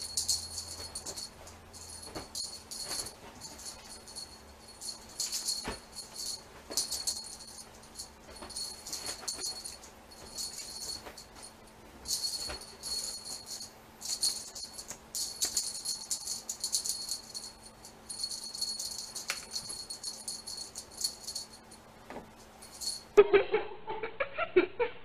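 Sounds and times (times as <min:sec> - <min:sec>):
small bell jingling: 0:00.0 - 0:21.9, 0:22.5 - 0:23.2.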